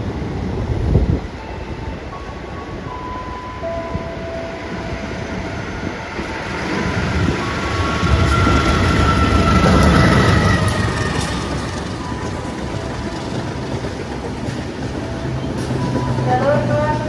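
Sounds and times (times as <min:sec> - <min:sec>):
train wheels rumbling on rails: 0:03.7 - 0:17.0.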